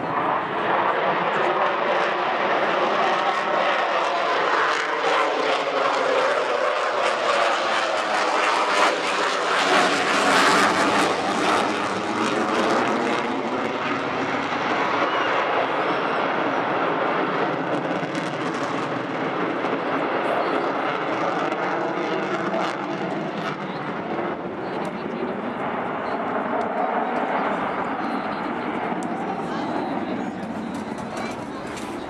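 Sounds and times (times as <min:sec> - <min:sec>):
airplane flying past: 0:00.0 - 0:24.4.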